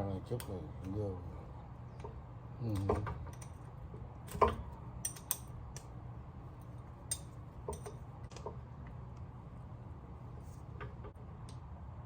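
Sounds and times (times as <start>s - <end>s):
light metal clicks and taps: 2.0s - 3.6s, 4.3s - 5.9s, 7.1s - 9.2s.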